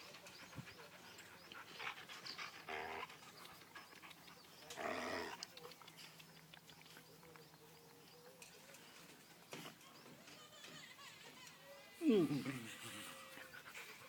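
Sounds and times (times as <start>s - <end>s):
dogs vocalising: 11.5s - 14.0s.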